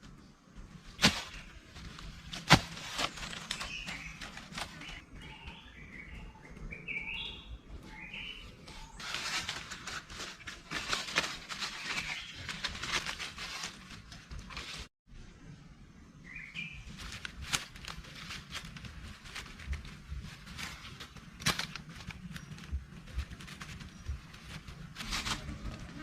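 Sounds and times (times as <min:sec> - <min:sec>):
dense crackling rustle: 0:00.0 - 0:05.3, 0:08.9 - 0:14.9, 0:16.8 - 0:26.0
bird chirping: 0:03.1 - 0:09.1, 0:16.0 - 0:17.0.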